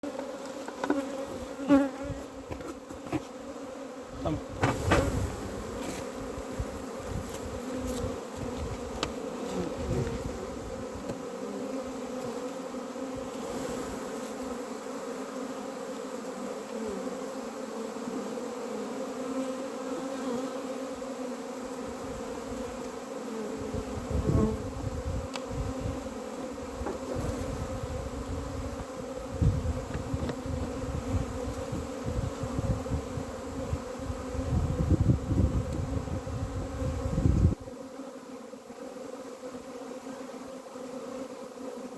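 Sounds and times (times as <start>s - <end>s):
bees buzzing: 0.0s - 41.9s
low thumps: 4.5s - 5.8s.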